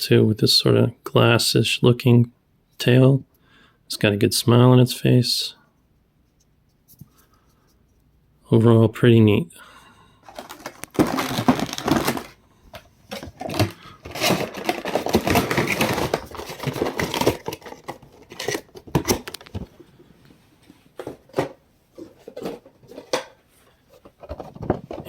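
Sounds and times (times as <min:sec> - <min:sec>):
cardboard and plastic rustling: 0:10.2 - 0:19.8, 0:20.6 - 0:25.0.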